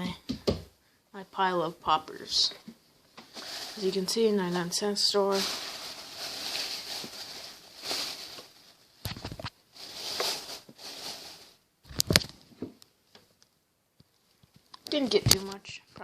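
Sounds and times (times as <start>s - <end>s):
shopping bag rustling: 3.2s - 11.6s.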